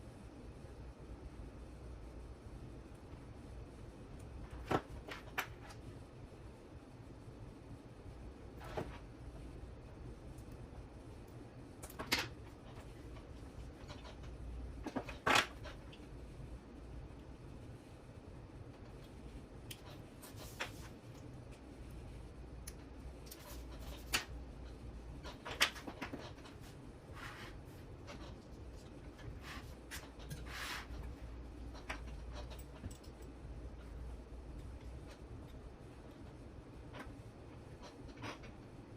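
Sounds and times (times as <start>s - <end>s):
low steady hum: 0.0s - 38.9s
rustling scrapes: 25.2s - 28.5s, 29.1s - 31.3s.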